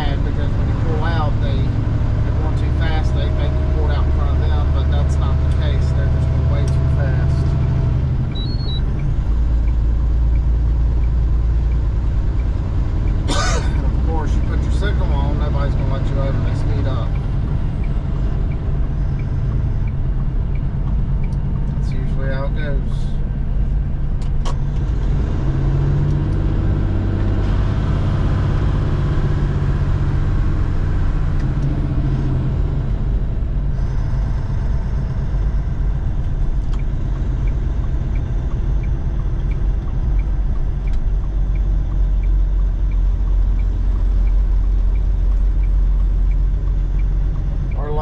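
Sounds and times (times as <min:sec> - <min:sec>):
diesel truck engine rumble: 0:00.0 - 0:48.0
road noise: 0:00.0 - 0:48.0
light regular ticking: 0:07.4 - 0:13.3, 0:13.9 - 0:22.4, 0:35.0 - 0:48.0.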